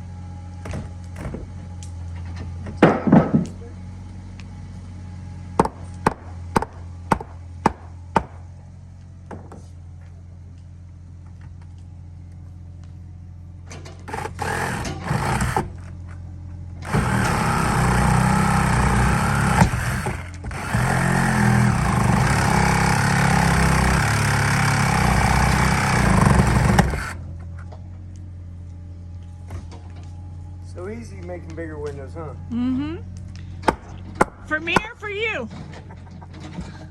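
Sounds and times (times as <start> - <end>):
steady low hum: 0.0 - 36.9
power saw cutting: 14.0 - 15.9, 16.8 - 27.2.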